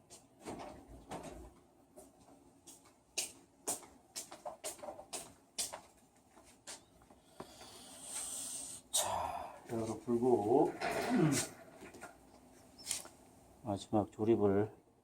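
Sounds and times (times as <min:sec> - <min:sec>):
compressed air blow gun hissing: 0:07.6 - 0:08.8.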